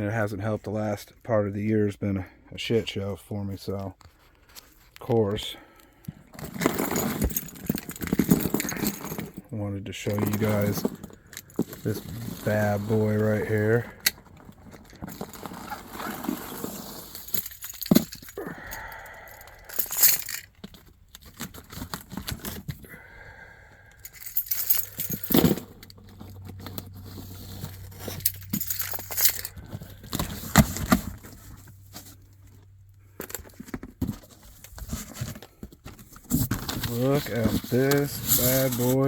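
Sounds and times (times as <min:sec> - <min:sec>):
boxes knocking and clattering: 0:06.3 - 0:09.4, 0:33.5 - 0:38.8.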